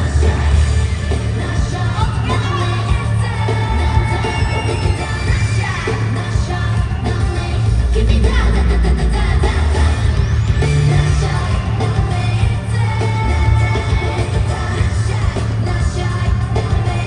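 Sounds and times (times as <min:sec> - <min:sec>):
pop song with singing: 0:00.0 - 0:17.0.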